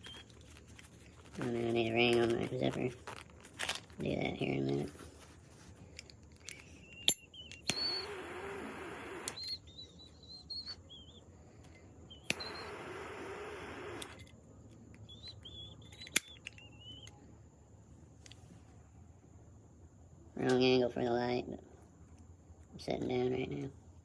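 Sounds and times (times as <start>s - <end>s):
small bird chirping: 0.0s - 0.5s, 6.4s - 14.2s, 15.0s - 17.3s
sharp clicks: 6.4s - 9.6s, 12.2s - 14.4s, 15.0s - 17.2s.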